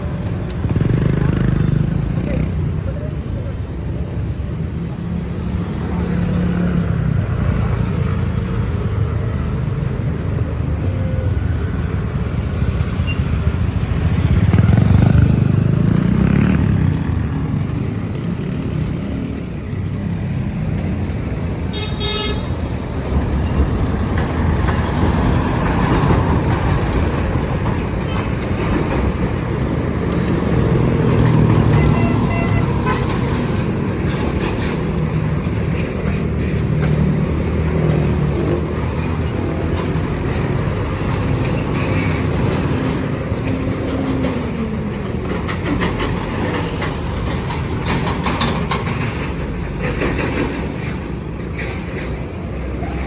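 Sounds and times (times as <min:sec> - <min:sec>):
trucks diesel rumble: 0:00.0 - 0:53.0
truck horn toot: 0:21.7 - 0:22.6, 0:31.7 - 0:33.0.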